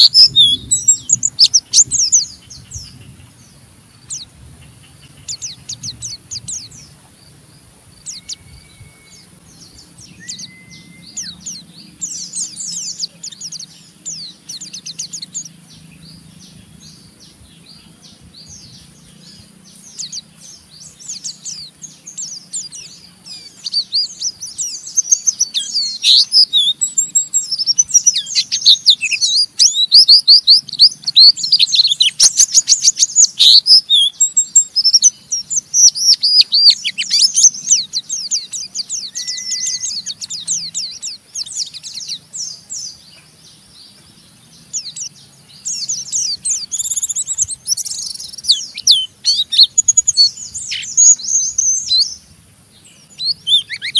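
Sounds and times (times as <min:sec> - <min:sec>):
bird chattering chirps: 0:00.0 - 0:07.0, 0:08.0 - 0:52.3, 0:52.9 - 0:53.9
faint steady hum: 0:00.0 - 0:53.9
short level whistles: 0:10.2 - 0:11.2.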